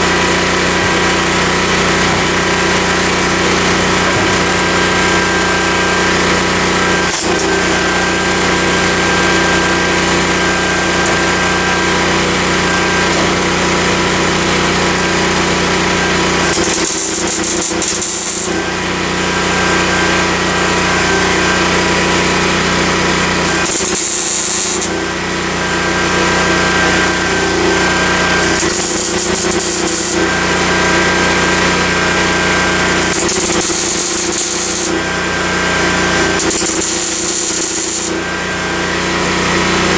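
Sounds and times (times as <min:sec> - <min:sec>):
generator engine running: 0:00.0 - 0:39.9
welding crackle: 0:16.4 - 0:18.7, 0:23.4 - 0:25.1, 0:28.4 - 0:30.3, 0:32.9 - 0:35.1, 0:36.2 - 0:38.2.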